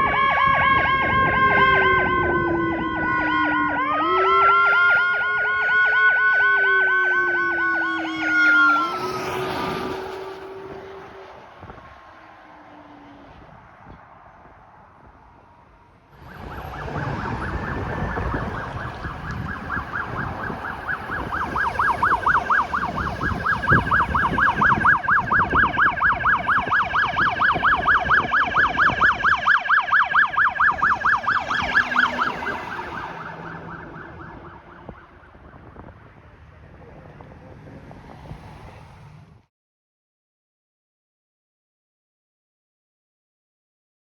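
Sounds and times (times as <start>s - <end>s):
emergency siren yelping: 0.0s - 13.4s, 16.2s - 36.3s
vehicle engine and tyre noise: 0.0s - 39.5s.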